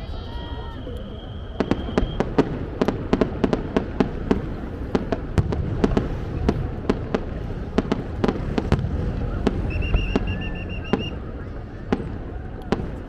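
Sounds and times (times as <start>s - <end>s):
high steady whistle: 0.3s - 2.3s, 9.3s - 12.0s
fireworks bursting: 0.8s - 13.0s
low rumble: 5.2s - 13.0s.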